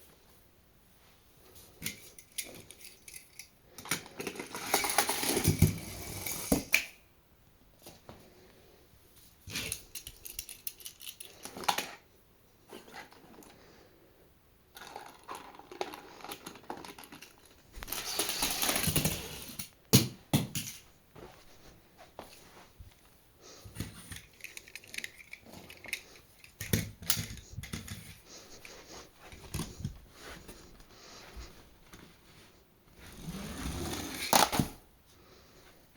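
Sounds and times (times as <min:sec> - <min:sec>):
toy cars and packaging clattering: 0:01.8 - 0:07.0, 0:09.4 - 0:12.1, 0:14.7 - 0:20.8, 0:23.7 - 0:28.2, 0:33.2 - 0:34.8.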